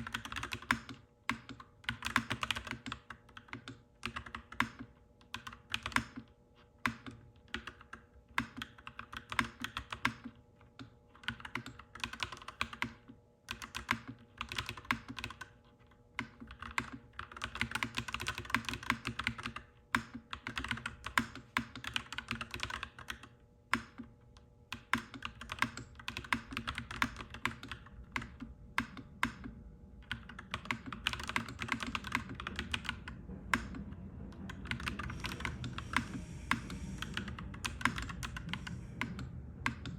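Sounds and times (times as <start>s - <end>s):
mechanical keyboard typing: 0.0s - 15.6s, 16.2s - 24.1s, 24.7s - 39.9s
low background rumble: 25.3s - 39.9s.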